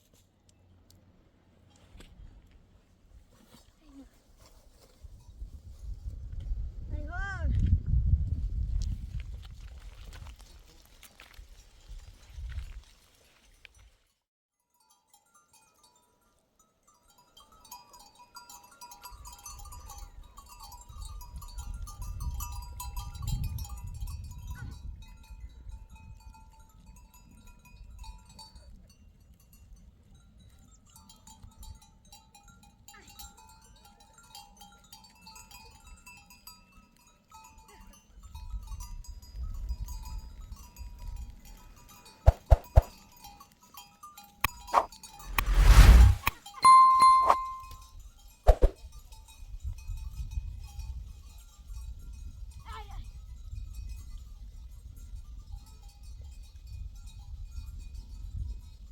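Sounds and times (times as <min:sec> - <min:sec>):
wind rumbling on microphone: 0:05.0 - 0:10.4, 0:21.3 - 0:25.8, 0:44.7 - 0:46.4.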